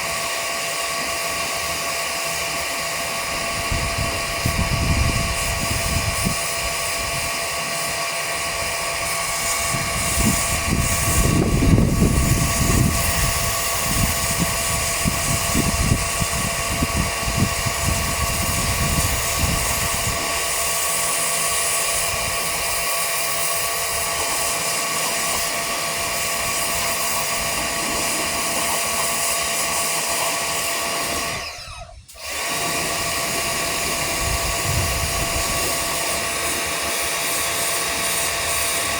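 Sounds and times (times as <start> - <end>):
pressure washer motor whine: 0.0 - 38.9
water spray hissing: 9.0 - 16.6, 17.3 - 31.2, 32.6 - 38.9.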